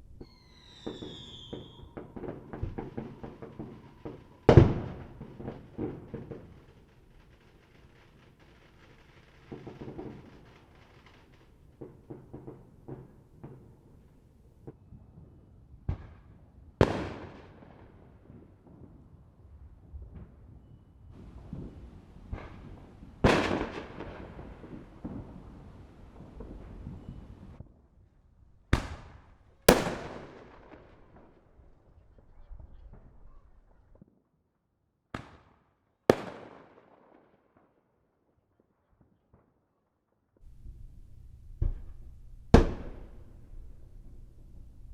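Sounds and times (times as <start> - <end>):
firework booms with echo: 0.0 - 14.8, 21.2 - 27.6, 28.8 - 31.5, 36.1 - 37.0, 40.4 - 44.9
firework pops and crackles: 0.0 - 14.9, 20.0 - 27.6, 28.8 - 31.4, 35.1 - 36.9, 40.4 - 44.9.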